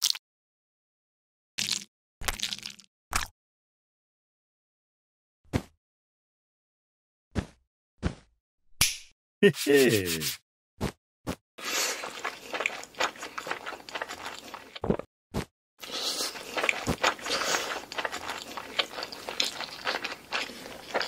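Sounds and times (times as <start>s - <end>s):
crunchy biting and chewing: 11.6s - 14.8s, 15.8s - 21.0s.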